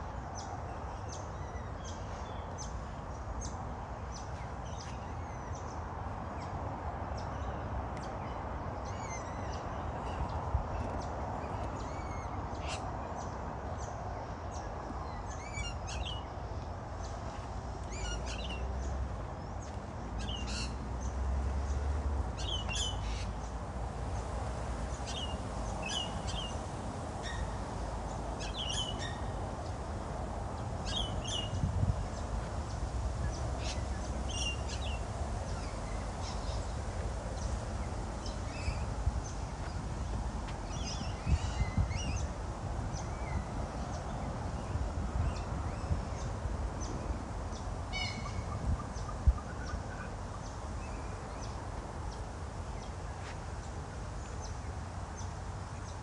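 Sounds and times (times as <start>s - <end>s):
birds short sharp high calls: 47.9s - 48.6s.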